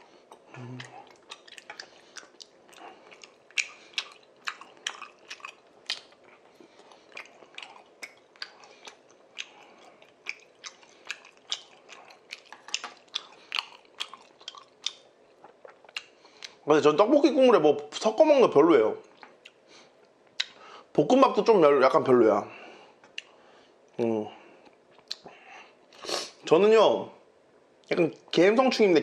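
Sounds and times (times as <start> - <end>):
wet chewing mouth clicks: 0.3 - 16.6, 20.4 - 20.6, 25.0 - 25.3.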